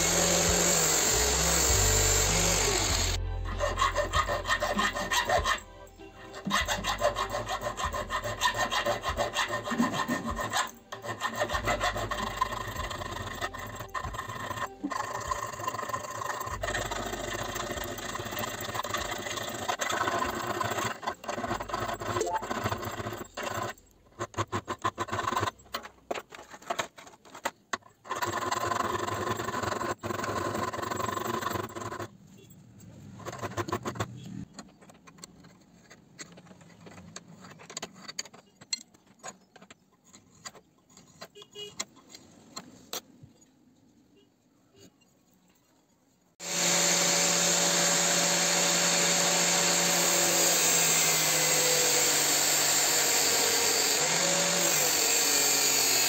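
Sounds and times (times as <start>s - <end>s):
hand file rasping on steel: 0.0s - 25.9s, 46.4s - 56.0s.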